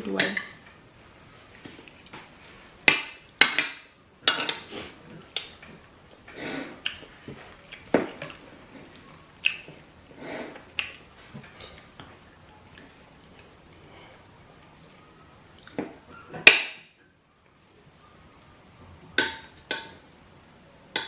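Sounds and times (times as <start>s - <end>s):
cutlery clinking against dishes: 2.9s - 4.7s.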